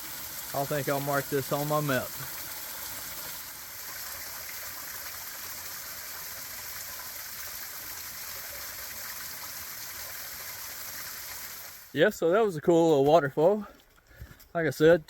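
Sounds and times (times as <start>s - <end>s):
waterfall over rock: 0.0s - 11.9s.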